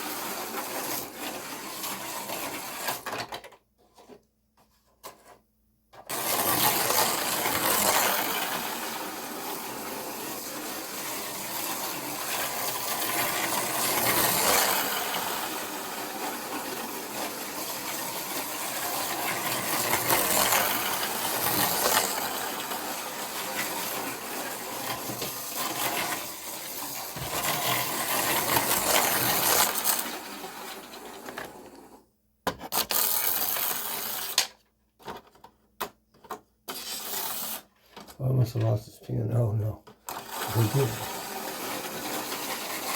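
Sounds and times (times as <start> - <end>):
slot car motors buzzing: 6.1 - 31.9, 40.1 - 42.9.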